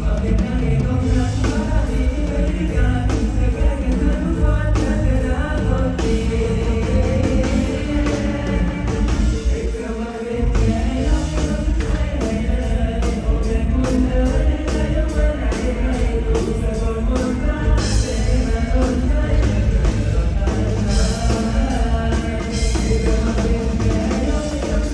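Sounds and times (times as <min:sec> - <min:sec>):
live band music: 0:00.0 - 0:24.9
person singing: 0:00.0 - 0:24.9
steady drum beat: 0:00.0 - 0:24.9.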